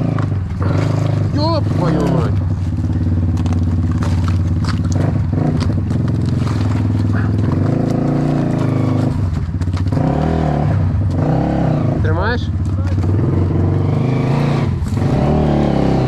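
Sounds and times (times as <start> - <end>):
off-road motorcycle engine running: 0.0 - 16.0
knocks and clatter: 2.3 - 11.3.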